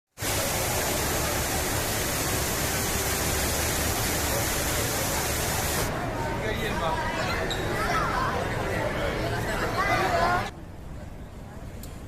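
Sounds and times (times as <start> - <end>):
rush of falling water: 0.1 - 5.9.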